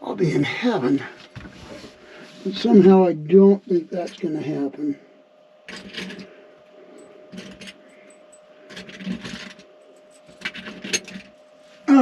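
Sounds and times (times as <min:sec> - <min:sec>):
faint steady hum: 0:00.0 - 0:12.0
tools clicking and rattling: 0:05.7 - 0:06.3, 0:07.0 - 0:11.4.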